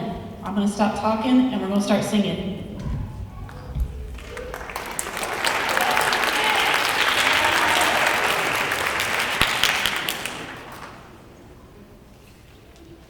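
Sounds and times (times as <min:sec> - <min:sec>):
audience applauding: 0:03.4 - 0:11.7.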